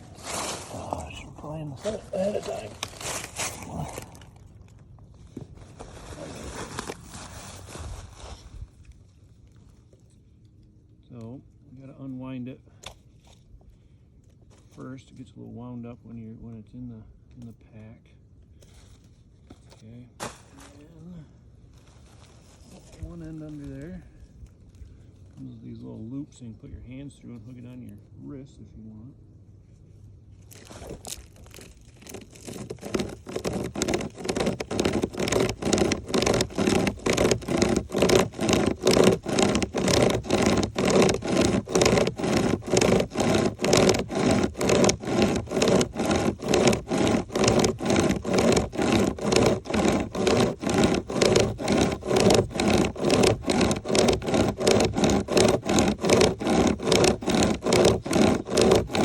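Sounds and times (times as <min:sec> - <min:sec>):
hand chainsaw sawing log: 0:00.0 - 0:04.7, 0:31.0 - 0:59.0.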